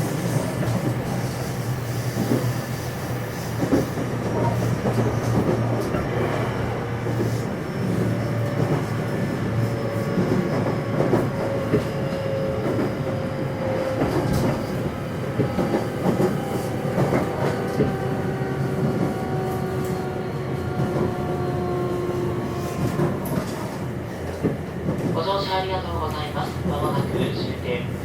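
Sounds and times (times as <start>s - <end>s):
wheels rumbling on rails: 0.0s - 28.0s.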